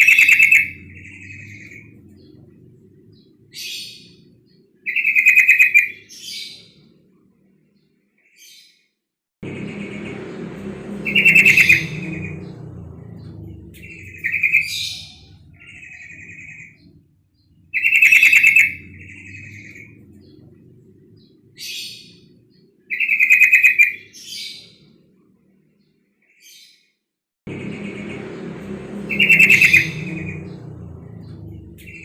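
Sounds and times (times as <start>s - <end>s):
low steady hum: 0.0s - 4.9s, 9.4s - 22.9s, 27.5s - 32.0s.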